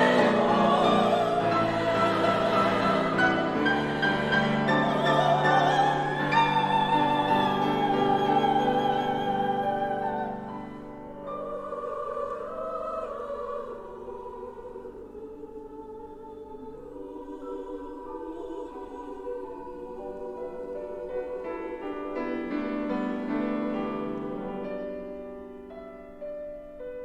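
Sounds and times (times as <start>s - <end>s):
piano accompaniment: 0.0s - 11.8s
women's choir singing: 0.0s - 24.5s.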